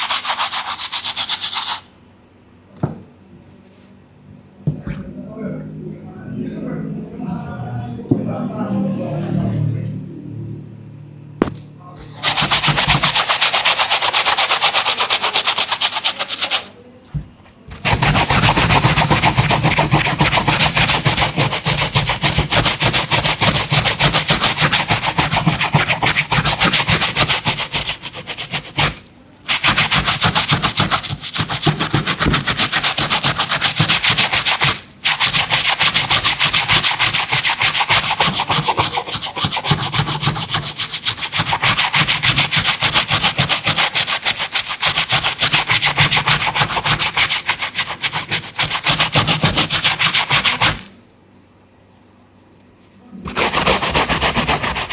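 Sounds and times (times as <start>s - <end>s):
scrubbing a sneaker: 0.0s - 1.8s, 11.4s - 50.9s, 52.7s - 54.9s.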